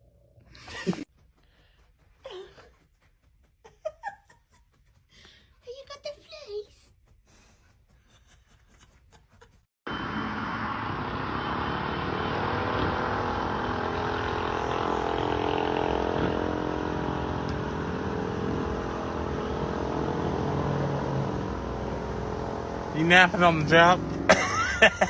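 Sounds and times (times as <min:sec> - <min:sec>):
road noise: 0:09.9 - 0:25.0
vehicle engine running: 0:09.9 - 0:25.0.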